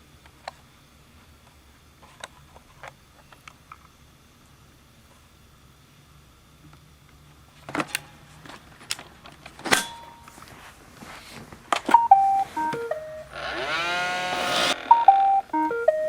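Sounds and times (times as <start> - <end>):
short electronic beeps: 12.0 - 16.0
robot vacuum hum: 12.5 - 16.0.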